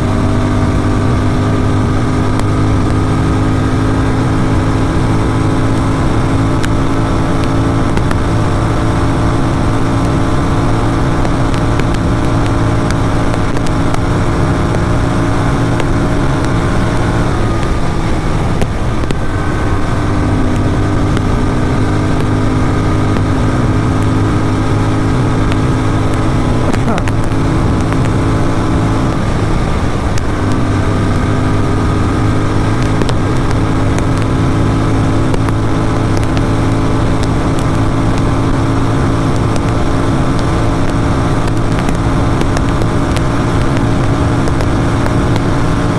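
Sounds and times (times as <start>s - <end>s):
motorcycle engine running hard: 0.0s - 45.9s.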